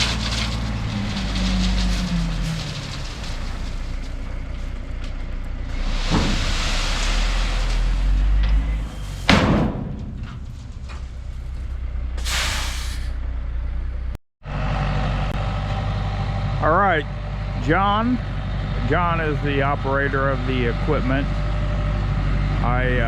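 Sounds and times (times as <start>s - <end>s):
engine rumbling: 0.0s - 23.0s
scraping hiss: 12.2s - 13.2s.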